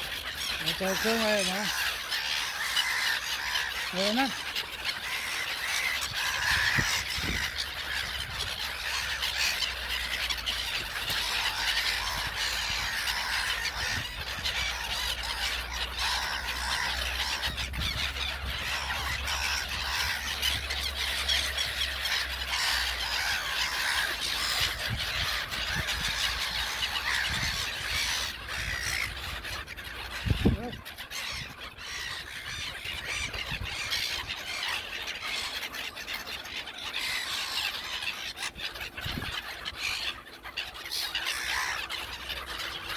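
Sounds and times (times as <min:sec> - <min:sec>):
gulls calling: 0:00.0 - 0:42.9.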